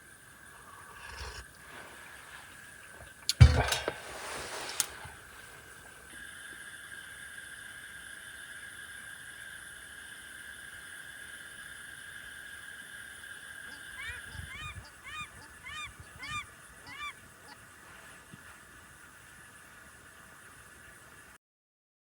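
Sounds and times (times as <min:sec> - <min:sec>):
waterbird honking: 0:13.6 - 0:17.6.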